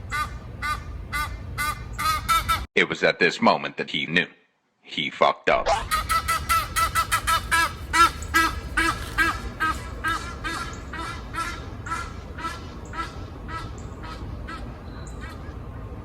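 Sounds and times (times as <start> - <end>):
duck quacking: 5.7 - 15.6.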